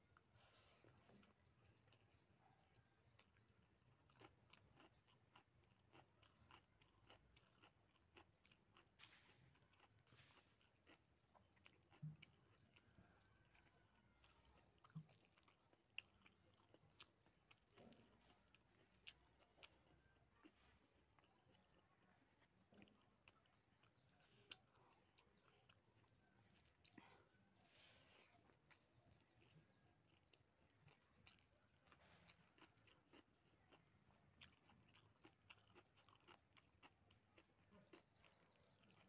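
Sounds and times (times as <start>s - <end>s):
faint close chewing: 0.0s - 39.0s.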